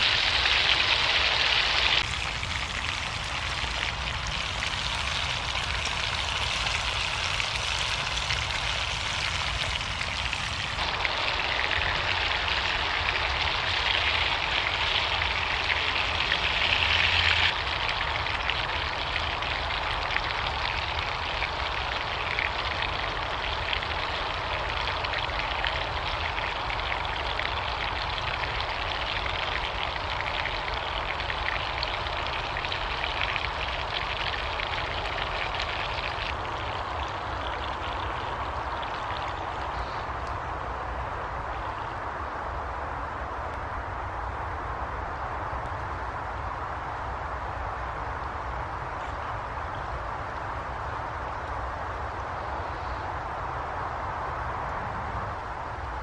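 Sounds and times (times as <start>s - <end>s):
food sizzling in a frying pan: 0.0s - 17.7s.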